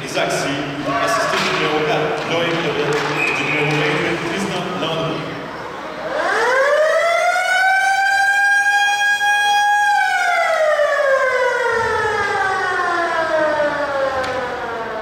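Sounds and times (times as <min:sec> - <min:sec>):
siren wailing: 0:05.9 - 0:15.0.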